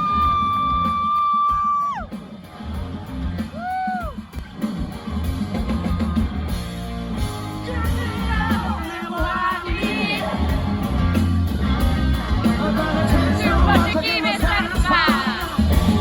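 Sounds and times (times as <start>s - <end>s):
rock band playing live: 0.0s - 16.0s
person singing: 12.1s - 16.0s.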